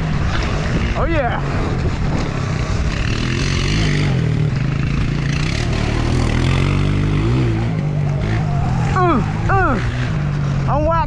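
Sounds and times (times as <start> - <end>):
dirt bike engine under throttle: 0.0 - 10.8.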